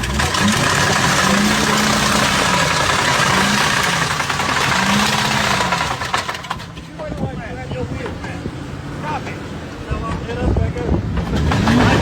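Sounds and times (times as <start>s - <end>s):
vehicle engine running: 0.0s - 8.4s
road noise: 0.0s - 12.0s.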